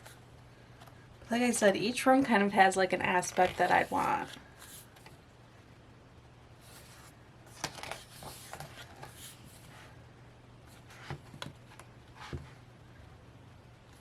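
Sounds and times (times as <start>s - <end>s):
paper pages rustling: 6.6s - 9.9s.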